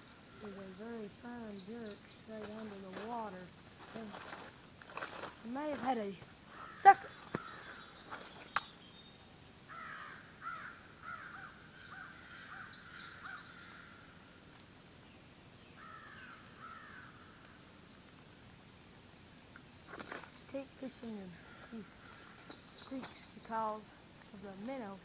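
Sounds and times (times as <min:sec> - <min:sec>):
high-pitched insect drone: 0:00.0 - 0:17.8, 0:19.9 - 0:25.0
sharp click: 0:08.5 - 0:08.7.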